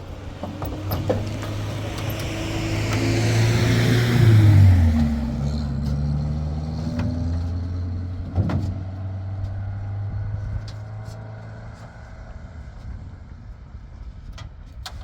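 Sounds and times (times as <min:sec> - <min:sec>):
vehicle engine humming: 0:00.0 - 0:14.8.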